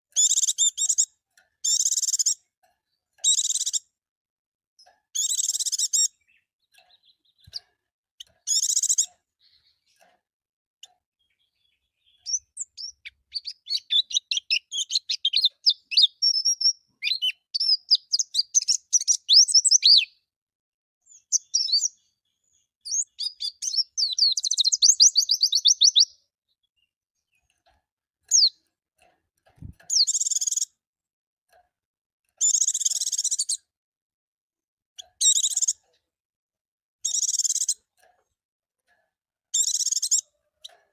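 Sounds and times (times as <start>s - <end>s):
bird twittering song: 0.1s - 3.9s, 4.8s - 10.1s, 10.8s - 20.3s, 21.0s - 28.7s, 29.6s - 30.8s, 32.4s - 33.7s, 35.0s - 36.0s, 37.0s - 37.9s, 39.5s - 40.8s
harsh bird chirps: 0.2s - 2.4s, 3.2s - 3.9s, 5.2s - 7.6s, 8.2s - 10.0s, 11.2s - 20.3s, 21.1s - 27.5s, 28.3s - 28.6s, 29.6s - 30.7s, 32.4s - 33.6s, 35.0s - 35.8s, 37.0s - 37.8s, 39.6s - 40.3s.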